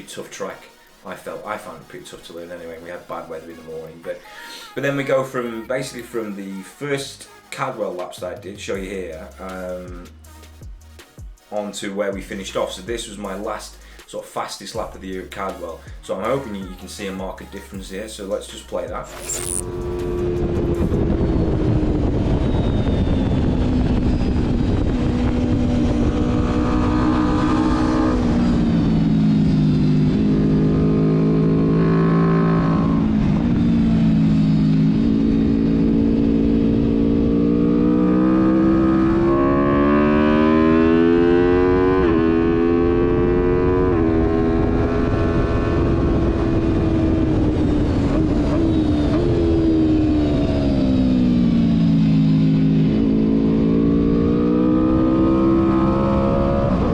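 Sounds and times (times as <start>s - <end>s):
motorcycle engine revving: 19.0s - 56.9s
wind noise: 19.6s - 29.7s, 43.9s - 51.6s, 56.2s - 56.9s.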